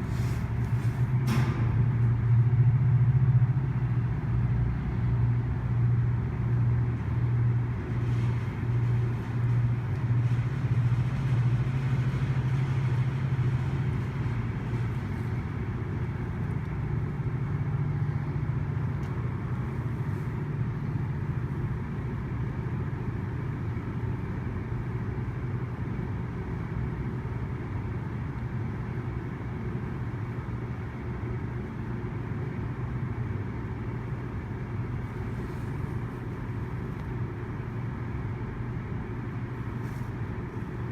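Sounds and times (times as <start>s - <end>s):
diesel locomotive engine drone: 0.0s - 40.9s.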